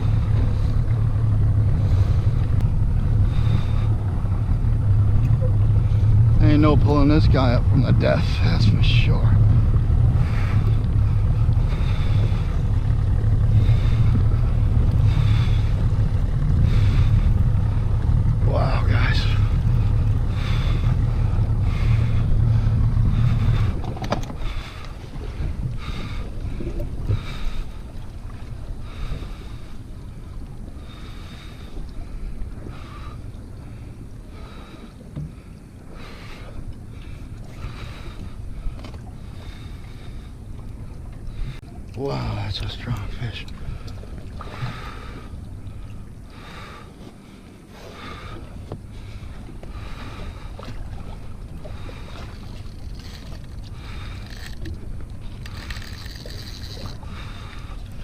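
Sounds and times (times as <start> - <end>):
outboard motor running: 0.0 - 58.0
water around boat: 0.0 - 58.0
wind buffeting microphone: 0.0 - 58.0
fishing reel whirring: 52.0 - 58.0.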